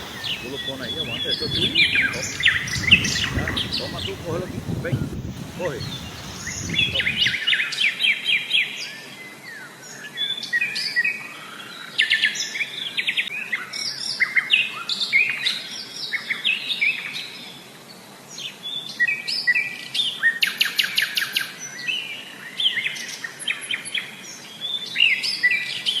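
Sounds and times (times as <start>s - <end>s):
birds chirping and trilling: 0.0s - 7.4s.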